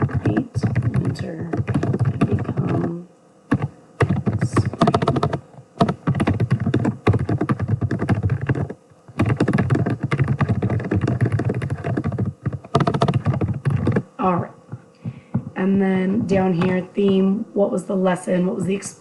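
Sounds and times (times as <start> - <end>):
typing on computer keyboard: 0.0 - 14.0.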